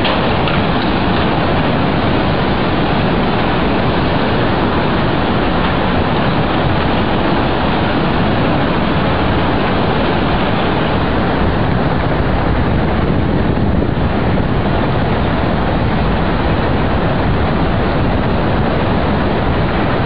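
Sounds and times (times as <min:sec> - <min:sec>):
loud steady rushing noise: 0:00.0 - 0:20.0.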